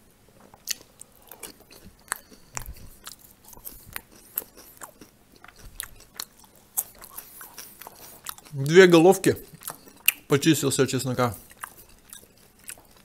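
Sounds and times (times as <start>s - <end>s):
man chewing food noisily: 0.3s - 13.0s.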